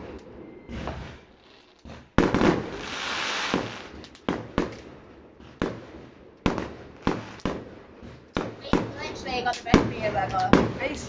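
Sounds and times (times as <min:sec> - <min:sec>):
fireworks banging: 0:00.0 - 0:11.0
fireworks hissing: 0:00.0 - 0:11.0.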